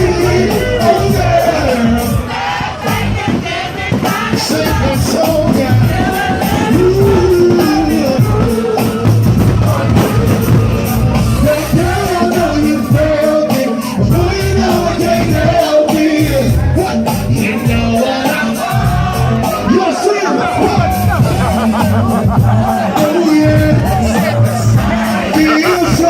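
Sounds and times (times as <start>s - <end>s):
live band playing: 0.0s - 26.0s
person singing: 4.4s - 18.6s, 20.5s - 26.0s.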